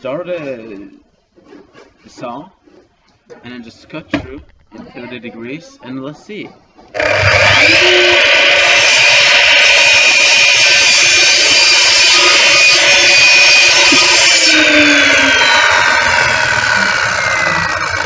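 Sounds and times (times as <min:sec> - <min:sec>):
mitre saw cutting wood: 0:07.0 - 0:18.0.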